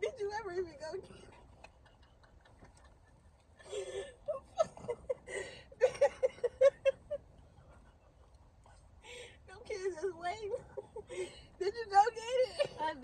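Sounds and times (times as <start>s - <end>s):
woman laughing hard: 2.0s - 7.2s.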